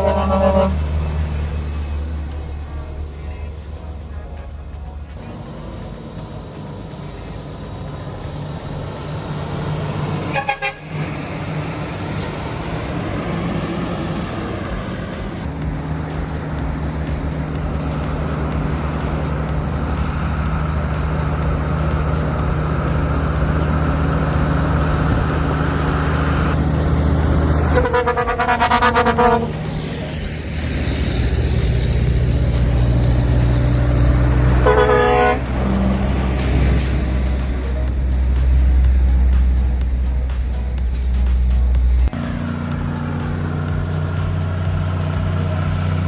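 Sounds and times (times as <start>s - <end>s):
truck horn toots: 0.0s - 5.4s, 10.0s - 39.5s
heavy truck engine running: 0.0s - 46.0s.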